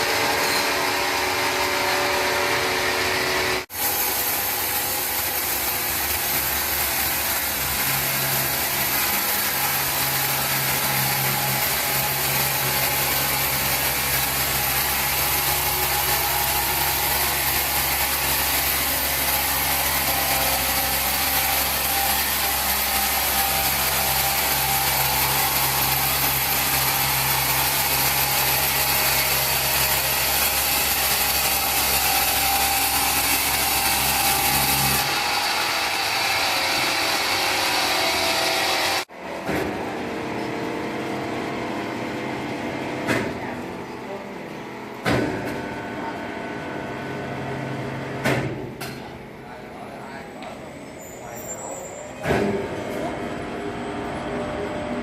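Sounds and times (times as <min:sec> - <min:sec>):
saw cutting timber: 0:00.0 - 0:39.4.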